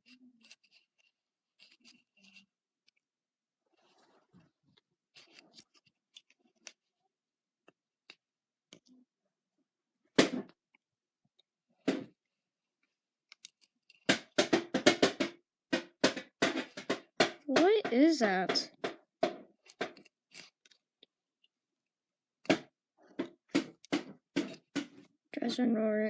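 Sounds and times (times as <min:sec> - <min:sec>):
rapid clattering knocks: 0:14.1 - 0:20.1.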